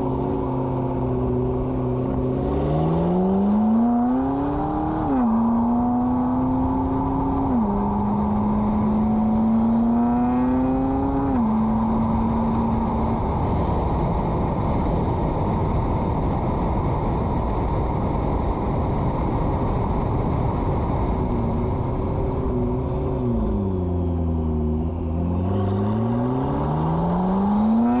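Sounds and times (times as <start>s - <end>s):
road noise: 0.0s - 28.0s
sports car engine revving through gears: 1.3s - 13.4s, 23.4s - 28.0s.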